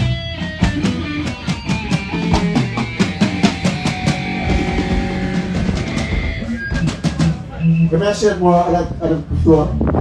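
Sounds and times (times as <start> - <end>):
live band playing: 0.0 - 10.0
bass drum hits: 1.8 - 7.5.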